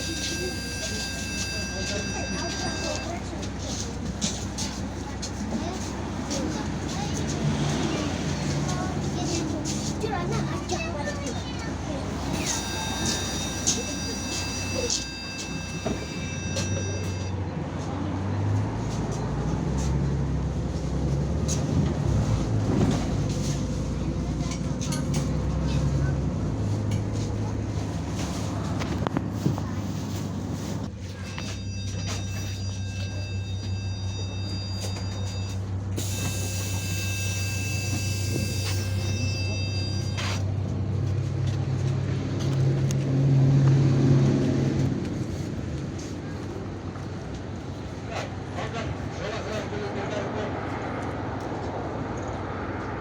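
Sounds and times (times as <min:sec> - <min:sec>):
high steady tone: 0:00.0 - 0:05.9, 0:12.1 - 0:17.4, 0:27.1 - 0:40.6
bus engine hum: 0:00.0 - 0:53.0
road rattle: 0:00.0 - 0:53.0.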